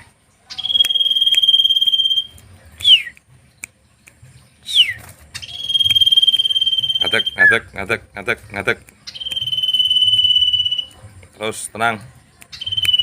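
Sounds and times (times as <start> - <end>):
songbird trill: 0.5 - 3.2, 3.9 - 7.8, 8.9 - 11.0, 12.4 - 13.0
falling bird whistles: 4.7 - 7.5.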